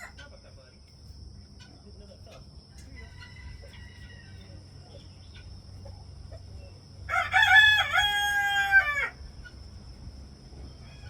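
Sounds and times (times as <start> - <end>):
rooster crowing: 2.9 - 4.6, 7.1 - 9.2.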